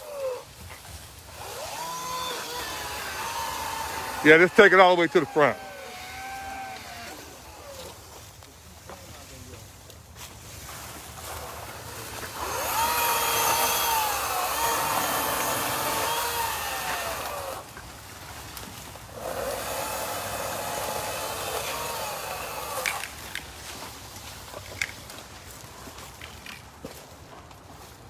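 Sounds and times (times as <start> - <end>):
power tool motor whine: 0.0 - 8.1, 11.3 - 17.7, 19.1 - 23.4.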